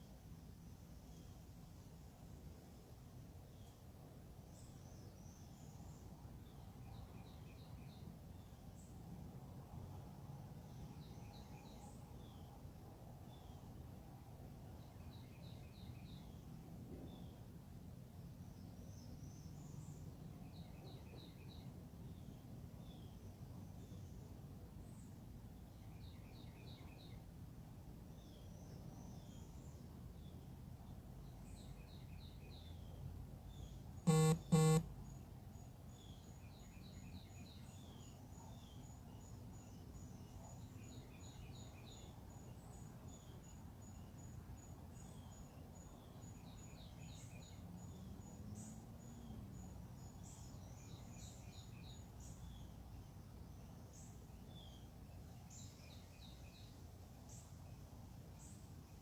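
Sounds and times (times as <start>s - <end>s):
birds chirping: 34.1s - 34.8s
short loud honks: 34.1s - 34.9s.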